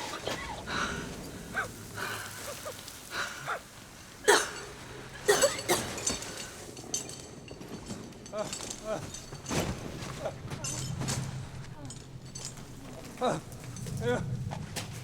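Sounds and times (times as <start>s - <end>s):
people breathing hard: 0.0s - 5.3s.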